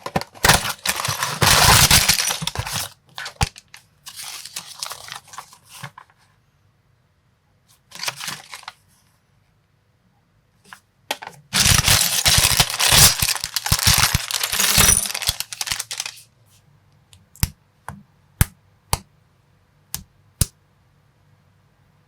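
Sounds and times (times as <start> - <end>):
plastic blocks clattering: 0.0 - 5.0, 11.6 - 16.2
plastic pieces clicking: 11.6 - 16.2.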